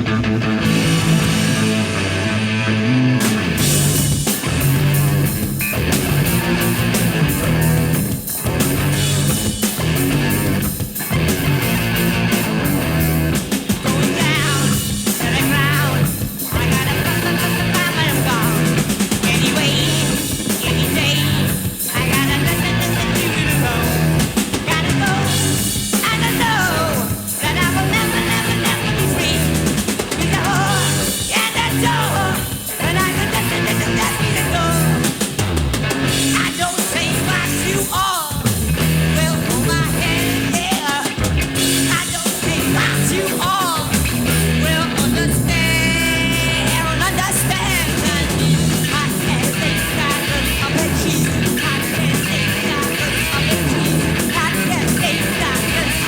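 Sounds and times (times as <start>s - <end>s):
hard rock band playing: 0.0s - 56.0s
man singing: 6.6s - 8.0s, 13.6s - 35.3s, 36.2s - 56.0s.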